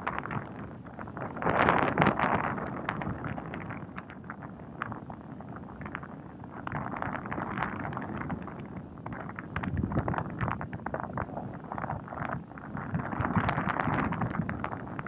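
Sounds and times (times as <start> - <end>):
crackles and ticks: 0.0 - 15.0
wind buffeting microphone: 0.0 - 15.0.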